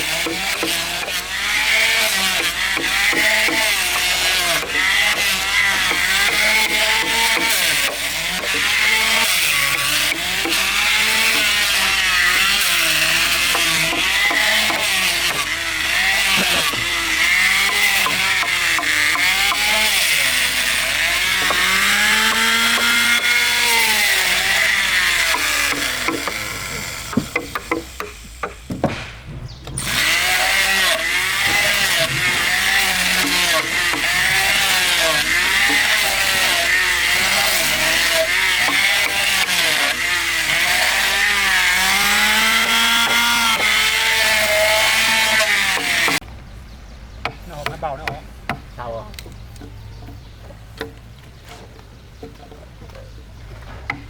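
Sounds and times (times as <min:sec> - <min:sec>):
chainsaw cutting timber: 0:00.0 - 0:46.3
knocks: 0:25.7 - 0:30.5.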